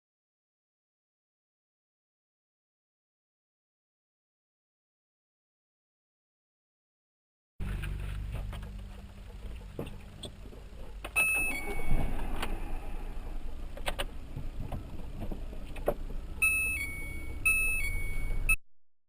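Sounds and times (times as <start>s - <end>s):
road and engine rumble in car: 7.6s - 18.6s
two-pitch electronic tone: 11.2s - 13.4s, 16.4s - 18.6s.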